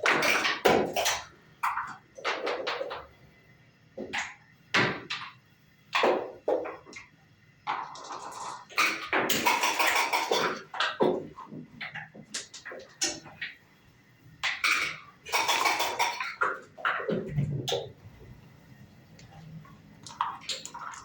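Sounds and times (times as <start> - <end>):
dice rattling in a cup: 7.7 - 8.7
checkers clacking on board: 7.7 - 13.6, 14.4 - 17.9.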